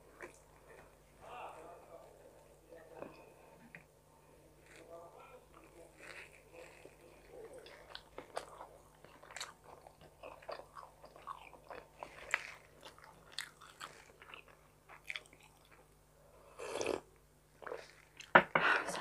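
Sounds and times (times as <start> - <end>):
person chewing pizza: 0.0 - 1.0, 4.6 - 18.3.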